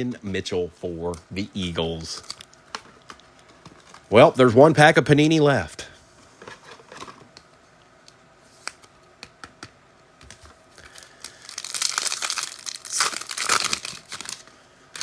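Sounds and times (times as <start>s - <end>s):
card pack wrapper tearing: 10.8s - 14.4s.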